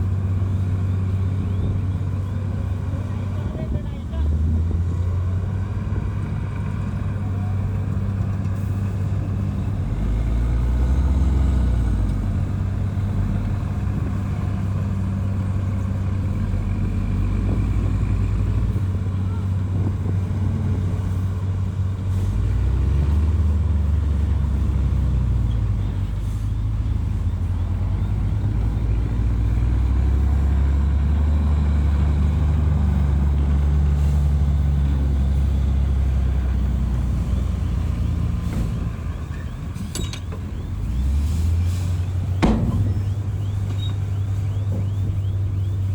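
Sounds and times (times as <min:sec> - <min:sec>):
diesel engine under load: 0:00.0 - 0:45.9
sharp knocks: 0:42.4 - 0:44.0.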